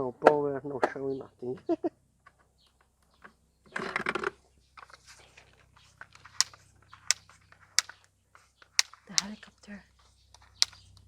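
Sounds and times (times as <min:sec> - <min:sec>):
sharp plastic clicks and taps: 0:06.4 - 0:07.2, 0:08.8 - 0:09.4, 0:10.6 - 0:11.0.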